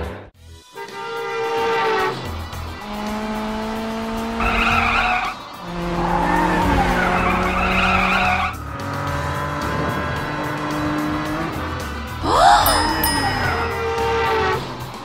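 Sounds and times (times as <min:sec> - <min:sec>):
screeching tyres: 0:00.8 - 0:12.2.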